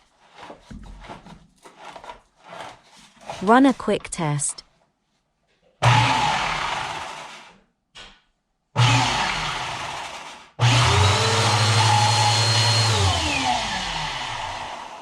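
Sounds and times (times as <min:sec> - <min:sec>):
vacuum cleaner whine: 0:08.8 - 0:09.8, 0:10.6 - 0:15.0.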